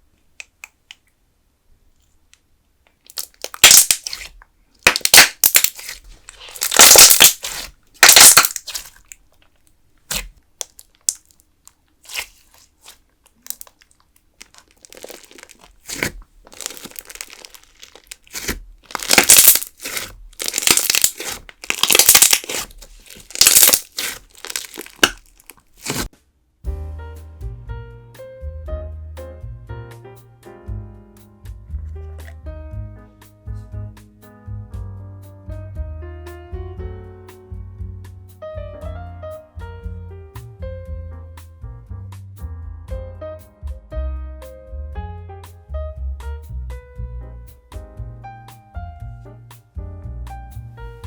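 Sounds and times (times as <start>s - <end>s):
slime squeezed by hand: 3.1s - 9.2s, 10.1s - 11.2s, 12.0s - 26.1s.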